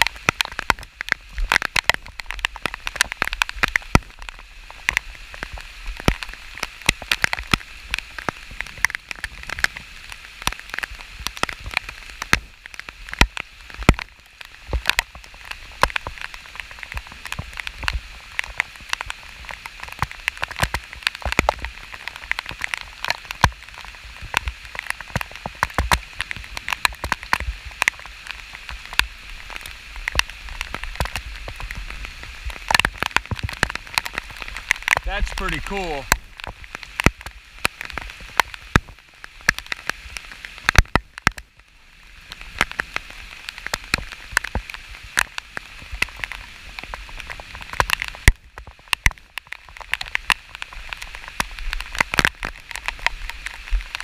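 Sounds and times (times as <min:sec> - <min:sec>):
rain falling: 0:00.0 - 0:54.0
raindrops hitting close: 0:00.0 - 0:54.0.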